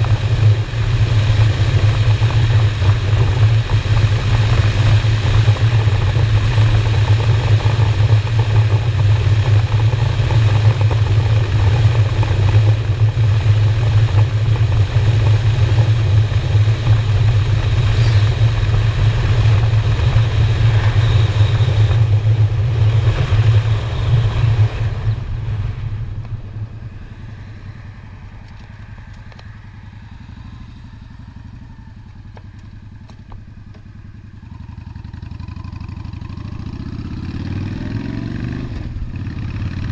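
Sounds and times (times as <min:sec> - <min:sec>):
wind rushing over microphone: 0:00.0 - 0:32.0
motorcycle engine running: 0:00.0 - 0:39.9.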